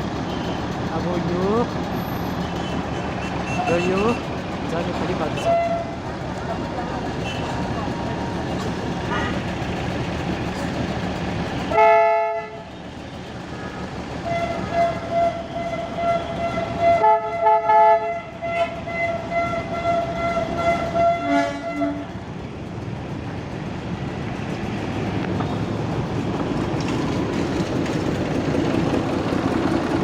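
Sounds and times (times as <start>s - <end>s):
locomotive horn: 5.4s - 6.0s, 11.7s - 12.7s, 13.6s - 22.2s
lower locomotive horn: 5.4s - 6.0s, 7.2s - 7.6s, 11.7s - 12.7s, 13.6s - 22.2s.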